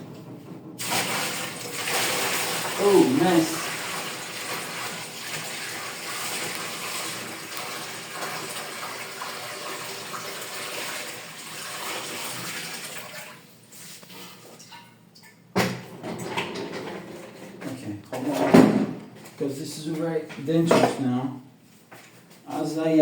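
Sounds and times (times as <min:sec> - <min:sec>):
water splashing into tank: 0:00.8 - 0:13.5.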